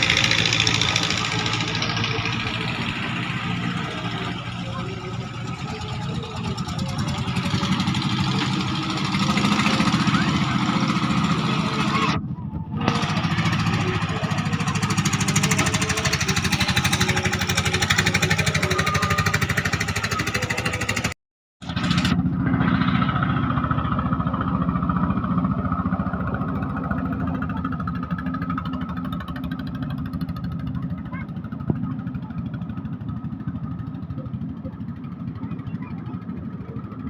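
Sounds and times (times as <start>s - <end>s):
boat engine running: 0.0s - 37.0s.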